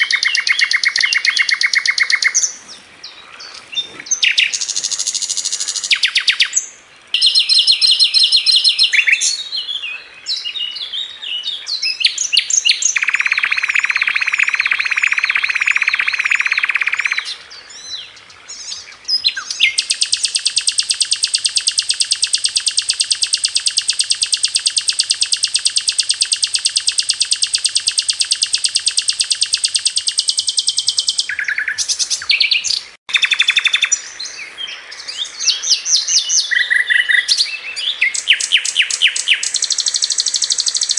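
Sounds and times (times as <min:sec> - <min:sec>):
rattling bird trill: 0:00.0 - 0:02.4, 0:12.9 - 0:17.2, 0:19.7 - 0:32.0, 0:38.2 - 0:40.9
flycatcher song: 0:00.0 - 0:02.6, 0:03.4 - 0:10.8, 0:11.8 - 0:17.7, 0:18.5 - 0:40.9.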